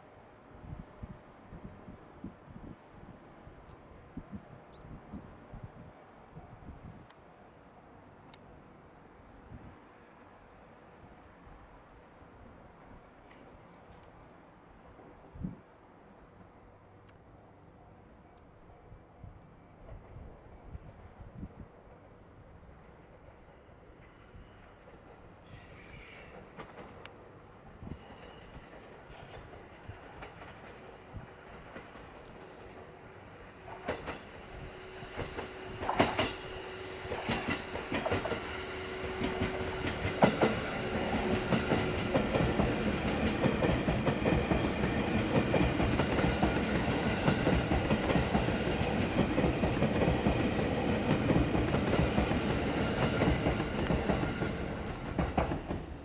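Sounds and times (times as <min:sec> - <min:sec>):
train wheels rushing on rail: 0:19.7 - 0:56.0
wheels clicking over rail joints: 0:37.1 - 0:56.0.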